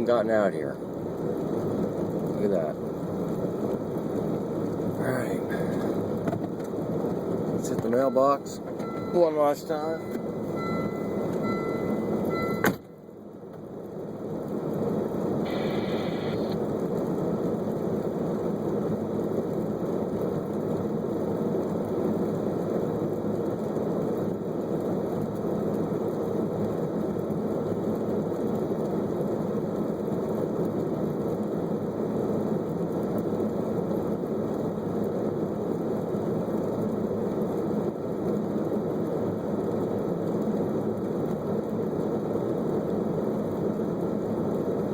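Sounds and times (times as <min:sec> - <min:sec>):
car running hum and hiss: 0:00.0 - 0:44.9
steady electronic tones: 0:07.8 - 0:13.0, 0:15.4 - 0:16.6.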